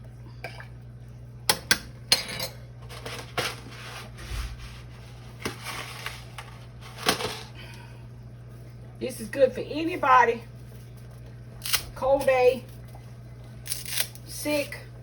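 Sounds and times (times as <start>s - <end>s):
utensil scraping in pot: 2.2s - 7.5s.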